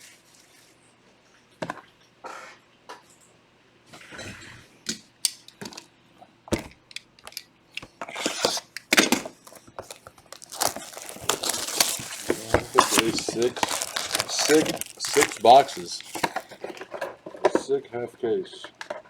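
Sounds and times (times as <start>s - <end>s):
cardboard crinkling rustles: 9.3s - 17.4s.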